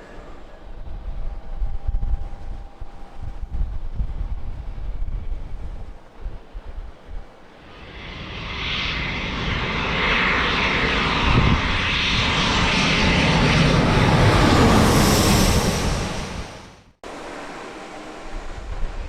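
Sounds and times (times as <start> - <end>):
jet engines passing: 7.3 - 19.0.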